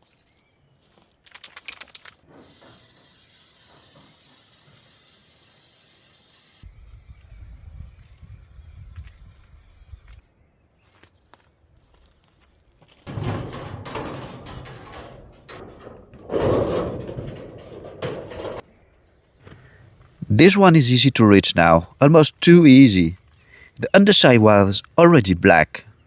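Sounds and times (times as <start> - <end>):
spray can rattle: 1.3 - 7.2, 13.1 - 23.4
spray can hissing: 2.4 - 10.2, 19.0 - 21.5.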